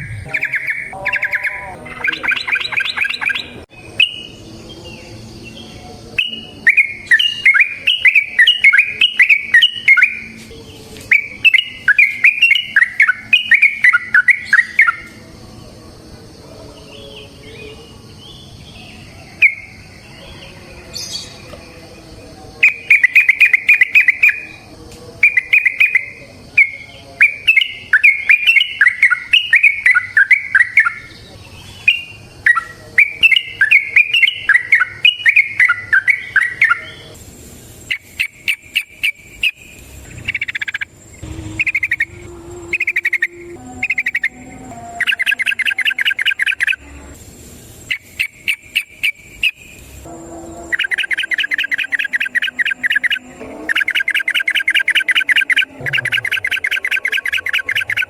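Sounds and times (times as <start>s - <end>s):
bird singing chattering phrases: 0.0s - 10.4s, 11.1s - 15.1s, 22.6s - 24.6s, 25.2s - 37.2s, 37.8s - 41.0s, 41.6s - 44.4s, 45.0s - 46.8s, 47.8s - 49.8s, 50.7s - 58.0s.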